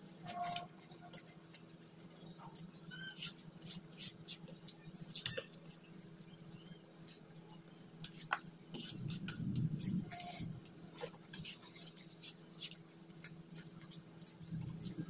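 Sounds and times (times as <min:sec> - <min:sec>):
steady low hum: 0:00.0 - 0:15.0
man chewing food: 0:05.5 - 0:15.0.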